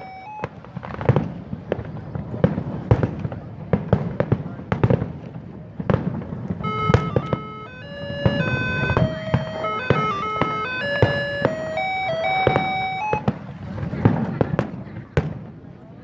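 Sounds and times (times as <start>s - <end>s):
simple electronic tune: 0.0s - 0.5s, 6.6s - 13.3s
fireworks bangs and crackles: 0.0s - 16.0s.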